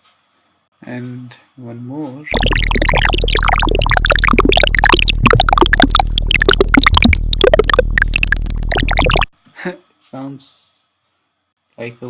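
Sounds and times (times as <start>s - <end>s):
bubbly gurgling synth blips: 2.3s - 9.3s
deep synth bass note: 2.3s - 9.3s.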